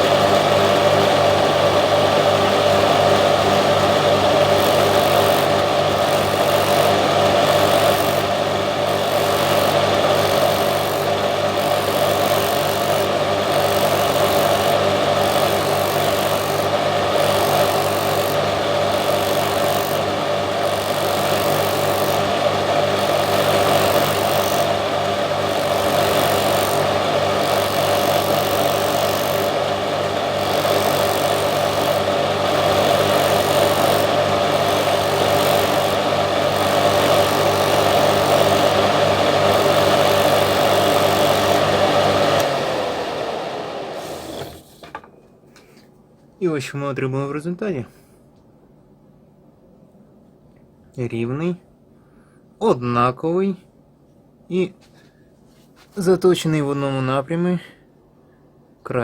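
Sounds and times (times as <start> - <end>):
power tool motor running: 0.0 - 45.0.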